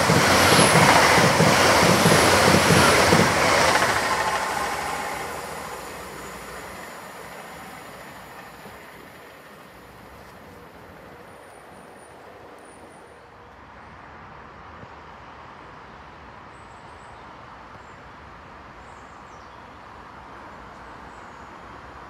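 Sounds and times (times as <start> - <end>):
distant train rumbling: 0.0 - 13.2.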